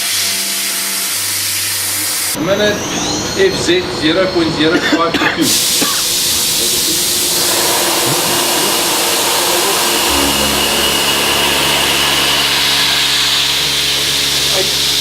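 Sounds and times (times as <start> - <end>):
milling machine cutting hiss: 5.5 - 15.0
steady hum: 5.8 - 15.0.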